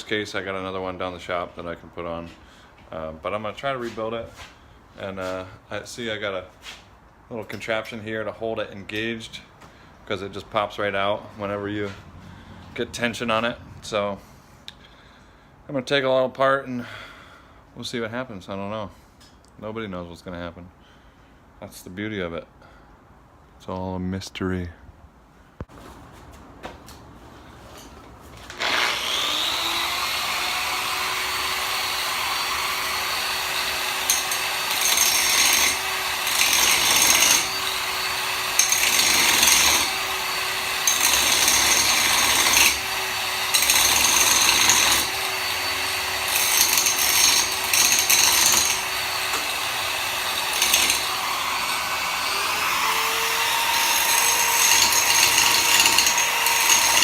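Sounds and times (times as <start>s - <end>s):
power tool cutting bolts: 28.5s - 57.0s.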